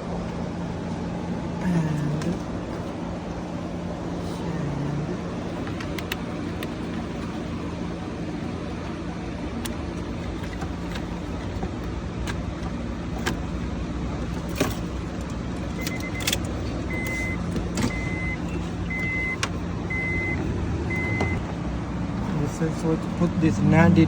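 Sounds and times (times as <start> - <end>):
steady low hum: 0.0 - 24.0
high-pitched warning chime beeps: 16.9 - 21.4.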